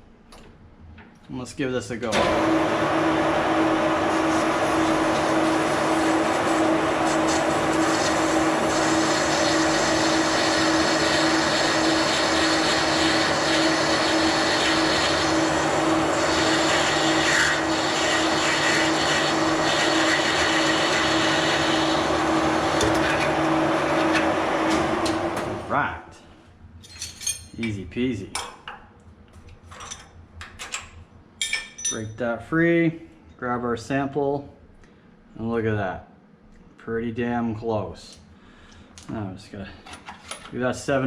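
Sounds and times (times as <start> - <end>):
metal lathe humming: 2.2 - 25.7.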